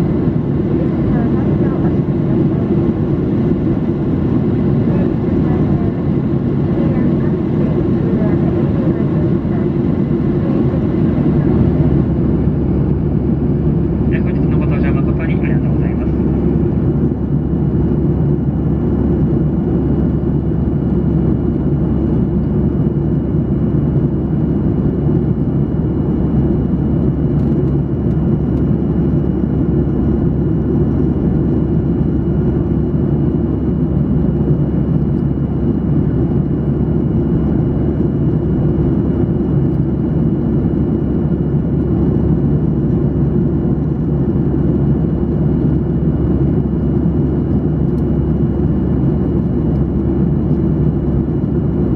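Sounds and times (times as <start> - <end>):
airplane cabin rumble: 0.0 - 51.9.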